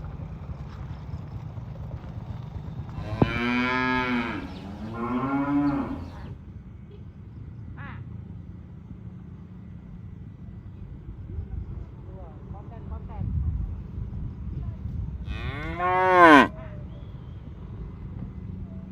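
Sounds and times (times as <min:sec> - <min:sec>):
cattle mooing: 0:03.0 - 0:06.3, 0:15.3 - 0:16.5.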